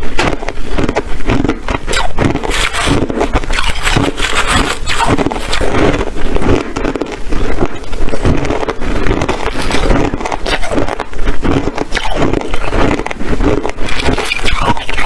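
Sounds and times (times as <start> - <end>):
hard ice being chewed: 0.0 - 15.0.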